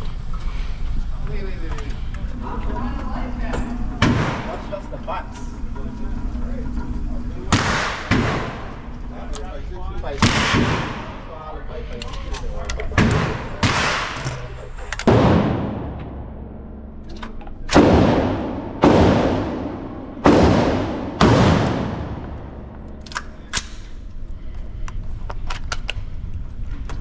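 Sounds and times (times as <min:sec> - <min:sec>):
loud echoing gunshots: 0:04.0 - 0:04.7, 0:07.5 - 0:08.9, 0:10.2 - 0:11.3, 0:13.0 - 0:14.2, 0:15.0 - 0:17.0, 0:17.6 - 0:23.0.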